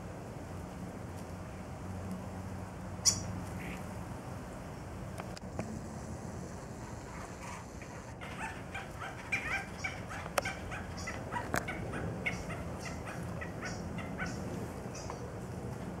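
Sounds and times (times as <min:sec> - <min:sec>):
birds chirping: 0:03.0 - 0:03.8, 0:07.8 - 0:15.4.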